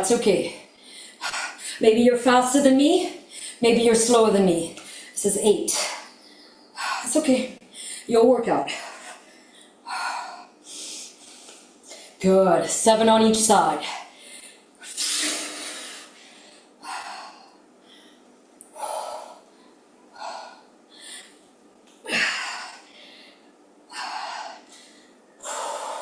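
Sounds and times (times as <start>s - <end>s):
woman breathing hard: 0.8s - 1.8s, 7.7s - 8.1s, 8.7s - 12.2s, 14.0s - 26.0s.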